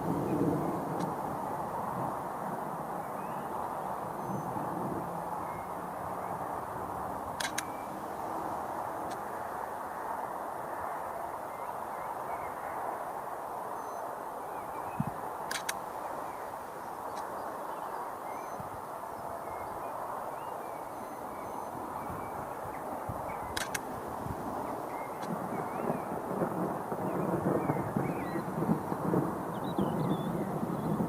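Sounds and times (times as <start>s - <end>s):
sharp clicks: 7.4s - 7.8s, 15.5s - 15.8s, 17.1s - 17.3s, 23.5s - 23.9s
faint bird chirps: 13.7s - 23.8s.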